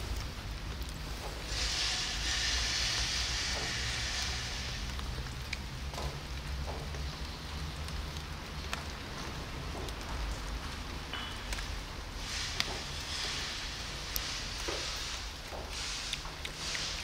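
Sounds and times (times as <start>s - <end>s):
steady rain falling: 0.0s - 17.0s
drip-like clicks: 3.0s - 11.8s, 12.4s - 17.0s.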